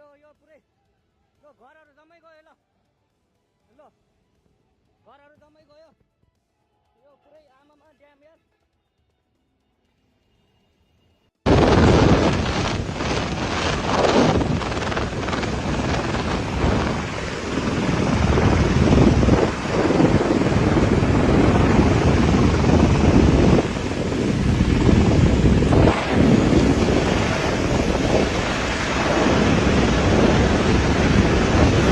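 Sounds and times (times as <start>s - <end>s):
wind buffeting microphone: 11.5s - 31.9s.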